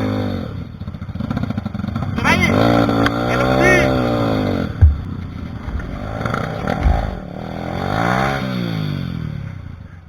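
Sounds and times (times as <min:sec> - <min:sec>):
low thump: 0:04.5 - 0:07.6.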